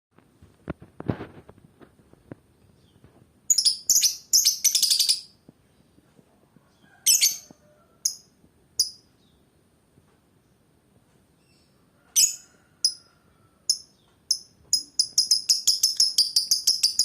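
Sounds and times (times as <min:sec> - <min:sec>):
lovebird shrill chirps: 0:03.5 - 0:05.3, 0:12.2 - 0:13.0, 0:13.7 - 0:17.0.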